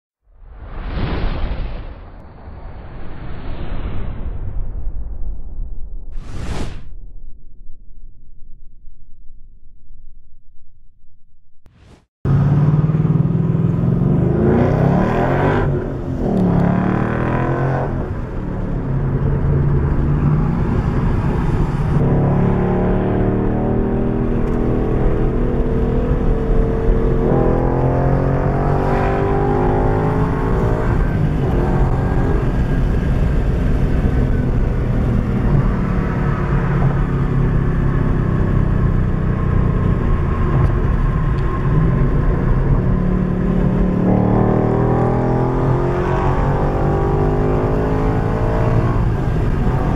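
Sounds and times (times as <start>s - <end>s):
car engine revving and accelerating: 12.3s - 49.9s.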